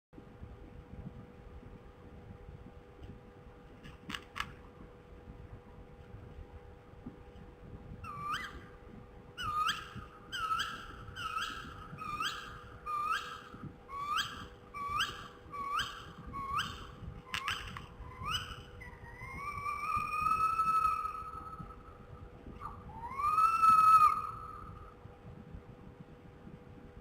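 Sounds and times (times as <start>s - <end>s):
owl calling: 8.0s - 8.8s, 9.4s - 25.0s.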